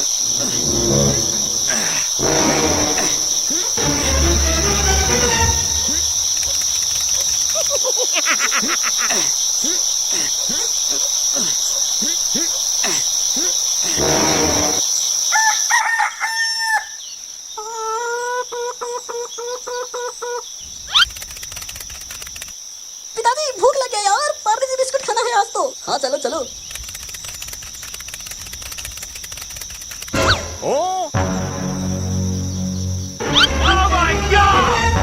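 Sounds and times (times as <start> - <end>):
short repeated calls: 0.0 - 7.6, 33.2 - 35.0
crickets trilling: 0.0 - 35.0
rooster crowing: 15.3 - 17.0.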